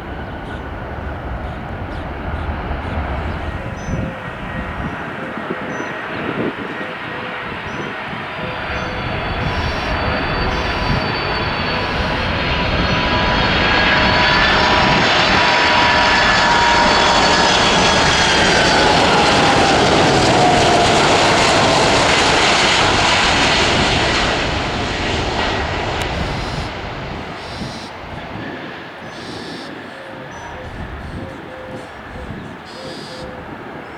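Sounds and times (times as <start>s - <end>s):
jet airliner passing: 0.0s - 33.9s.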